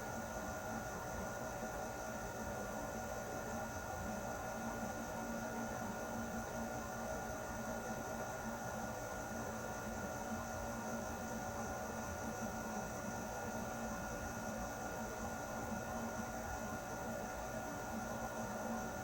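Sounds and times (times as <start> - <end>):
air conditioner running: 0.0 - 19.0.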